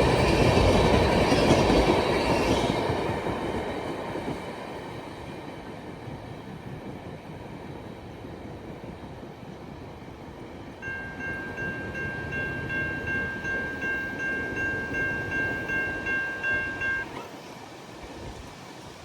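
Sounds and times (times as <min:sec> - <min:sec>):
railroad bell dinging rapidly: 0:10.8 - 0:17.4.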